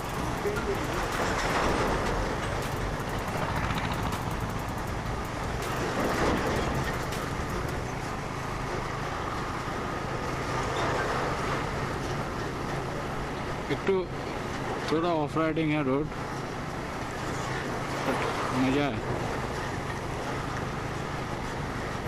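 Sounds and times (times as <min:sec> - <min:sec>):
motorcycle engine running: 0:00.0 - 0:09.0
wind and road noise: 0:00.0 - 0:22.0.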